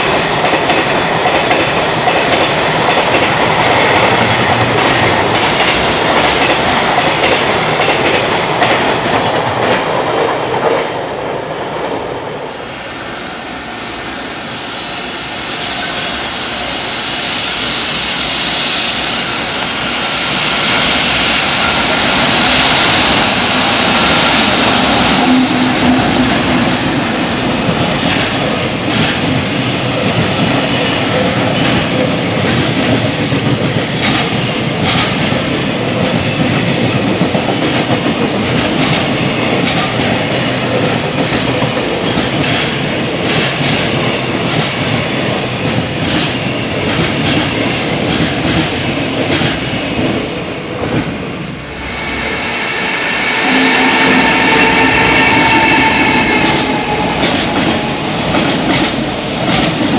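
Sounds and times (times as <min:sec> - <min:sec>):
locomotive passing with rush: 0:11.9 - 0:32.3, 0:47.7 - 0:59.9.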